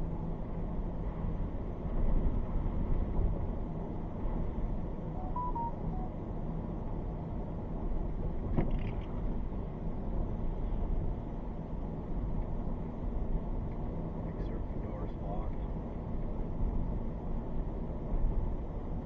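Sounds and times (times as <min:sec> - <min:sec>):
quiet electronic beeps: 0:05.2 - 0:06.1.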